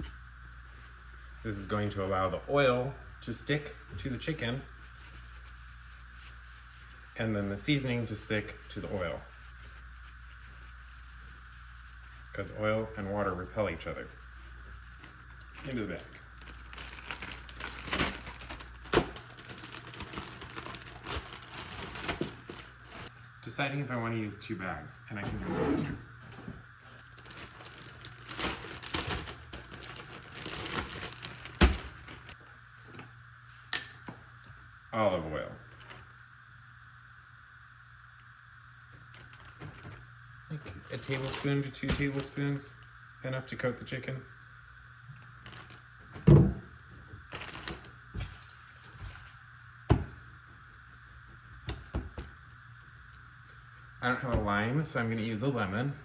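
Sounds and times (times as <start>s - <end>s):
faint steady hum: 0.0s - 56.0s
plastic bag crinkling: 14.8s - 23.1s, 26.8s - 32.4s, 39.1s - 40.0s, 40.8s - 42.4s, 45.4s - 45.9s, 47.3s - 49.4s
rustling: 26.8s - 32.4s.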